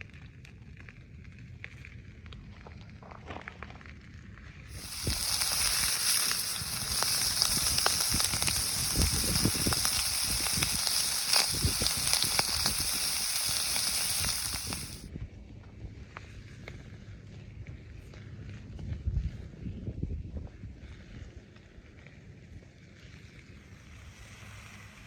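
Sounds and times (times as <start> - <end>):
fire crackles and pops: 0.0 - 15.1
campfire hissing: 4.7 - 15.1, 23.6 - 25.0.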